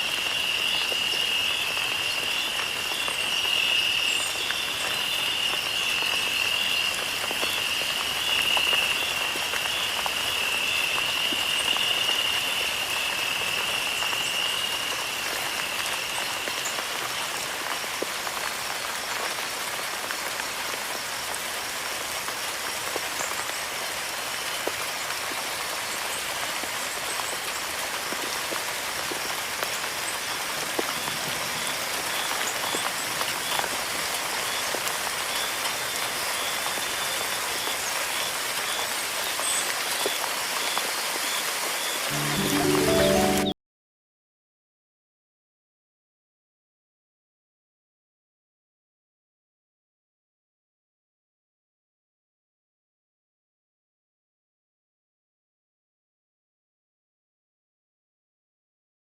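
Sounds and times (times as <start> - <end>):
rain falling: 0.0 - 43.6
high steady chorus: 42.1 - 43.6.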